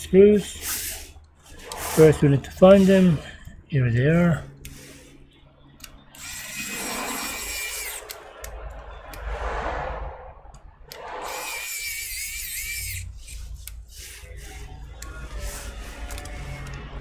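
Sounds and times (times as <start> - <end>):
electric screwdriver motor whine: 6.2 - 8.2
clicks and scraping: 10.4 - 13.9.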